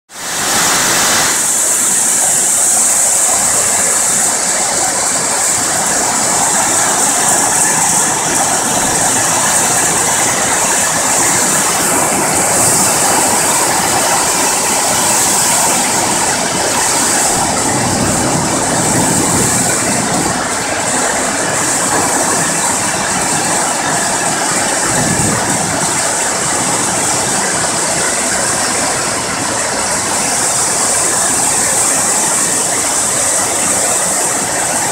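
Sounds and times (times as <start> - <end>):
hailstones pelting down: 1.4 - 34.9.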